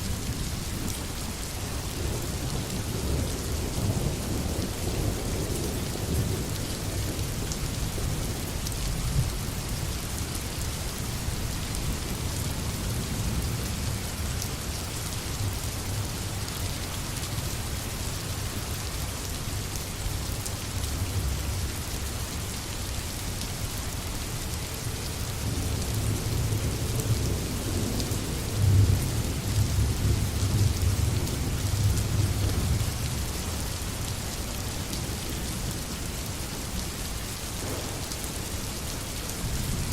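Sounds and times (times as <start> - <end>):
heavy rain falling: 0.0 - 39.9
thunder rumbling: 37.6 - 38.6.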